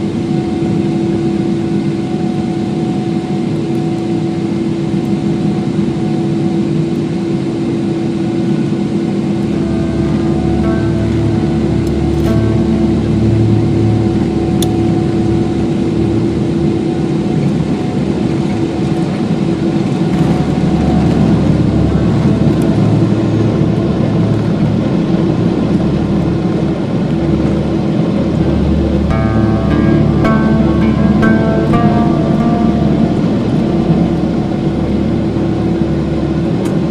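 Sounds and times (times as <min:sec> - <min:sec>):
jet engine roar in cabin: 0:00.0 - 0:36.9
constant low hum: 0:08.1 - 0:36.9.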